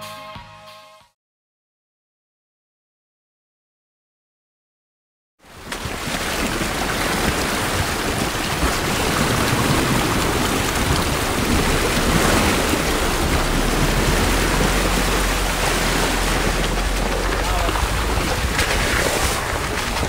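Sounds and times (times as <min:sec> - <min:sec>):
water splashing around tyre: 0:05.5 - 0:20.0.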